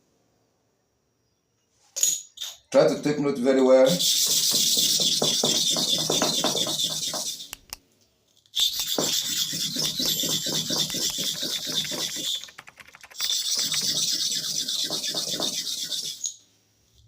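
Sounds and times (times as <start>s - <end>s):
blade rubbing on sharpening stone: 4.0s - 7.6s, 8.6s - 12.5s, 13.2s - 16.4s.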